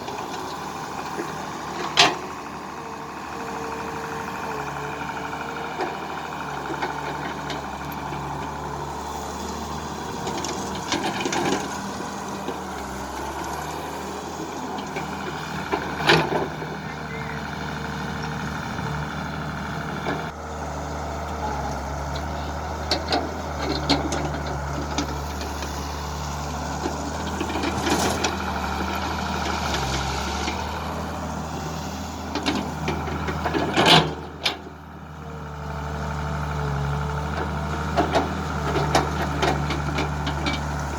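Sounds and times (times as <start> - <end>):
heavy diesel engines running: 0.0 - 40.9
machinery clanks and knocks: 0.1 - 2.5, 14.8 - 17.2, 21.4 - 26.0, 32.3 - 34.8, 37.3 - 40.9.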